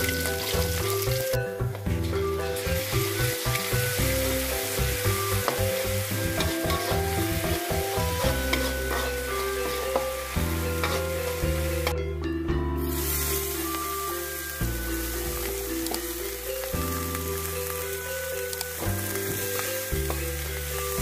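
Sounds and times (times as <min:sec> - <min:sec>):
oil sizzling in a wok: 0:00.0 - 0:12.0, 0:12.8 - 0:21.0
background music with bass line: 0:00.0 - 0:21.0
metal spatula stirring: 0:06.2 - 0:12.0.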